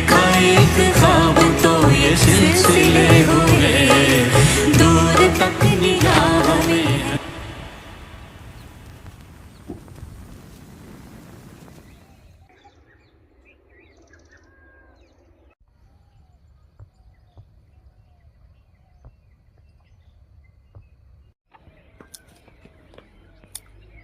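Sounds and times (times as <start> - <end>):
low outdoor rumble: 2.0 - 12.1.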